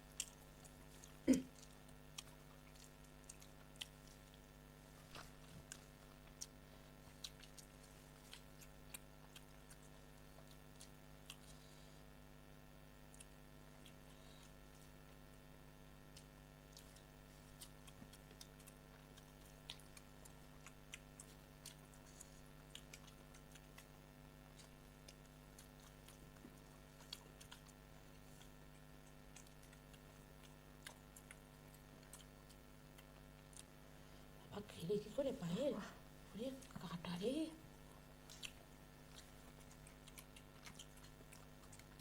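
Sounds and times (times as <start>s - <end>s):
person chewing: 0.0s - 15.4s, 16.0s - 34.4s, 37.8s - 42.0s
low electrical hum: 0.0s - 42.0s
small mouth clicks: 38.2s - 42.0s.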